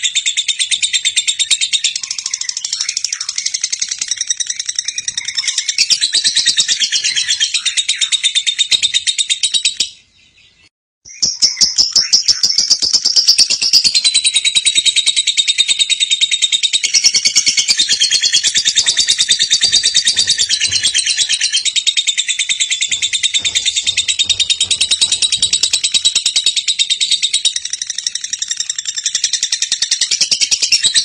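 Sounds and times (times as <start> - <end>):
bird chattering trill: 13.3 - 30.5.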